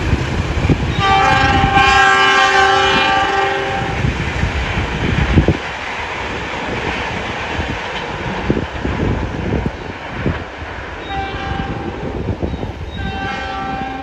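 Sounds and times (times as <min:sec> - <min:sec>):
train wheels clattering on track: 0:00.0 - 0:14.0
train horn chord: 0:00.9 - 0:04.0, 0:11.0 - 0:11.9, 0:13.0 - 0:14.0.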